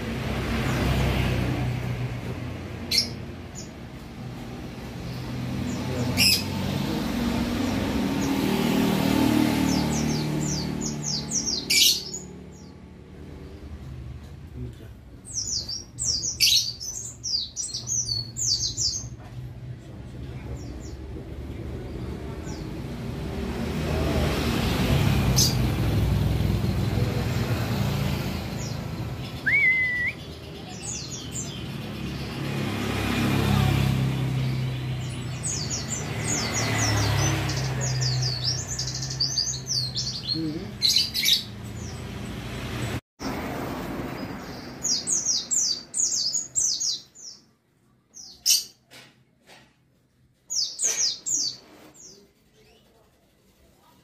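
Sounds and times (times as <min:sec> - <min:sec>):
road traffic rumble: 0:00.0 - 0:54.0
white-eye bird twittering: 0:28.6 - 0:30.4.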